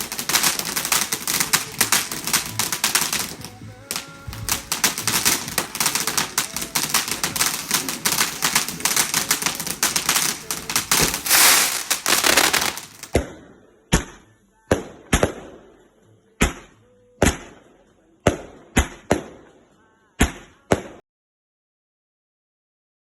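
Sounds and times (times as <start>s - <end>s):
fireworks crackling and popping: 0.0s - 13.4s.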